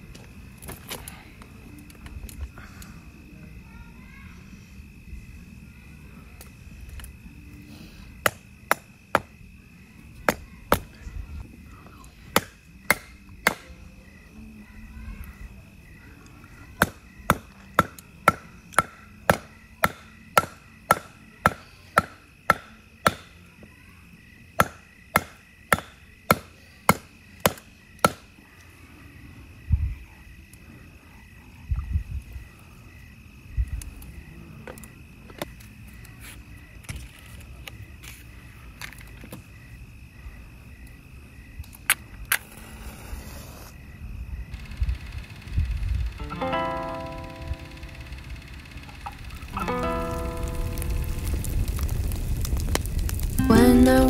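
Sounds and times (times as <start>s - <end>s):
axe chopping firewood: 8.2s - 9.4s, 12.3s - 13.8s, 16.8s - 23.4s, 24.6s - 28.3s.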